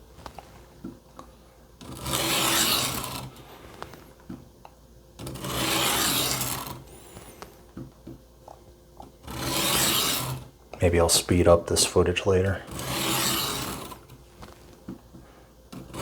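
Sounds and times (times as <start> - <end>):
knife scraping on sharpening stone: 2.1 - 3.1, 12.7 - 13.9.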